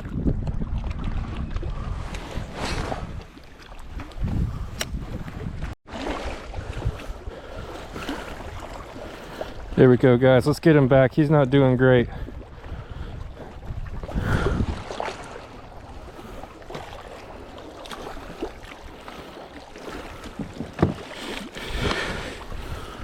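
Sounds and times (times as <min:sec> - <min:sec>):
wind on microphone: 0:00.0 - 0:09.8, 0:12.0 - 0:16.5, 0:20.0 - 0:23.0
water splashing and sloshing: 0:00.0 - 0:23.0.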